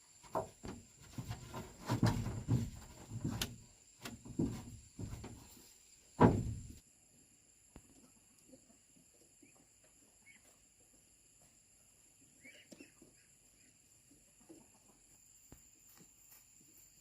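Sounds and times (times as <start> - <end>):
faint bird chirps: 8.4 - 10.7, 12.1 - 15.6.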